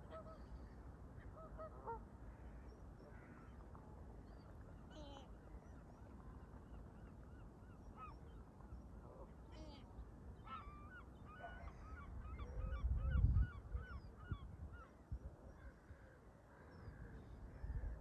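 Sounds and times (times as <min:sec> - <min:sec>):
wind rumble on microphone: 0:11.7 - 0:15.8, 0:16.9 - 0:18.0.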